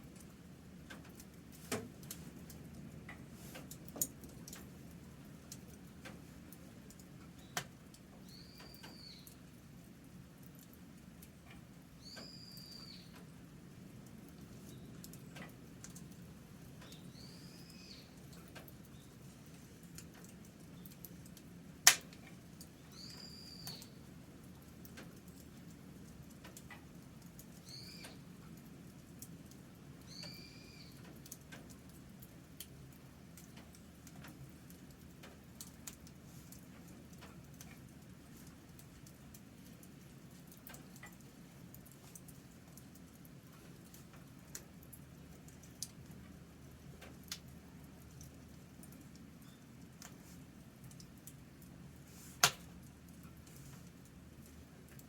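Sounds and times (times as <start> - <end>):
faint campfire crackling: 0.0 - 55.0
bird whistled calls: 12.0 - 13.1, 23.0 - 23.9, 30.1 - 30.9.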